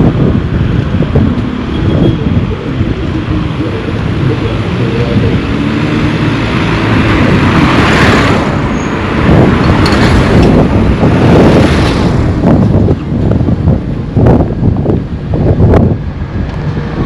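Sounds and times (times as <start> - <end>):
wind rumble on microphone: 0.0 - 17.0
vehicle passing by: 1.5 - 13.2.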